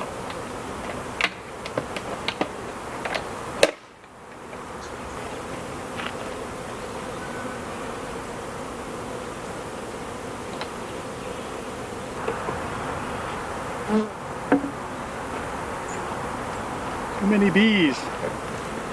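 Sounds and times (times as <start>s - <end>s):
honeybees buzzing: 0.0s - 18.9s
sharp knocks: 14.5s - 14.8s.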